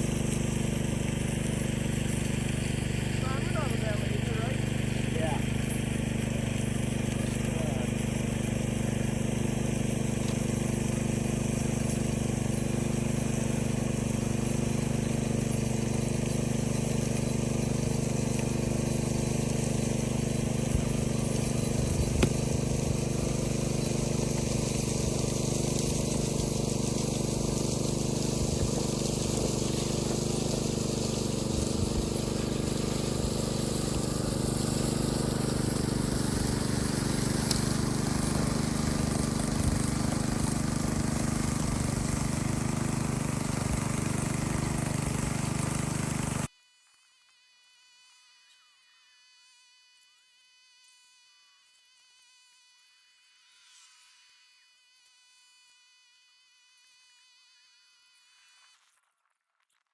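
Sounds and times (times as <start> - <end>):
gas engine droning: 0.0 - 46.5.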